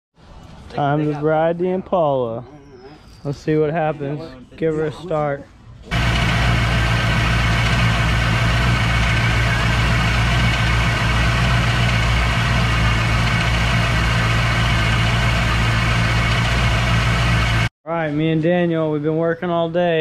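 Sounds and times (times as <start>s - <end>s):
car engine idling: 5.9s - 17.7s.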